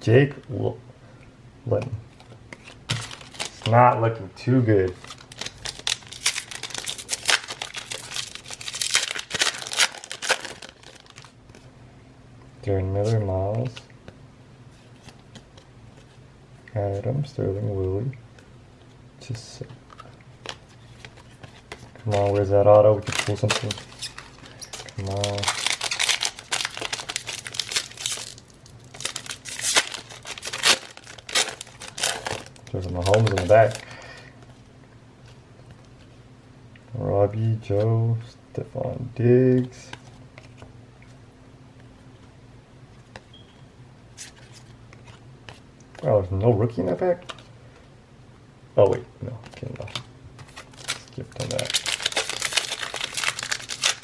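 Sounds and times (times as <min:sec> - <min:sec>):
foil wrapper tearing and crinkling: 0:02.9 - 0:03.7, 0:05.0 - 0:11.4, 0:23.0 - 0:33.8, 0:49.6 - 0:54.0.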